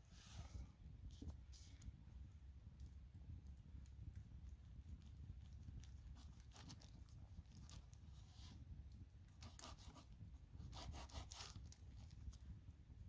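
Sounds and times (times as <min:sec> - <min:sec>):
rustling and scraping handling noise: 0:00.0 - 0:01.8.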